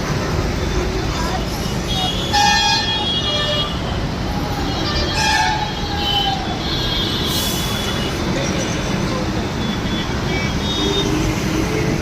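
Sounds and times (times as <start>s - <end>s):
bus engine and road noise: 0.0s - 12.0s
bus horn: 2.0s - 3.9s, 4.8s - 8.2s.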